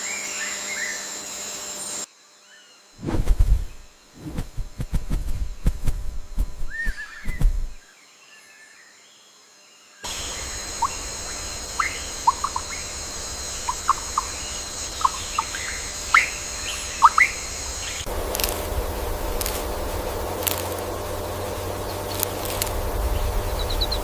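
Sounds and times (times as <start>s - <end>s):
birds chirping: 6.6s - 7.8s, 10.1s - 24.0s.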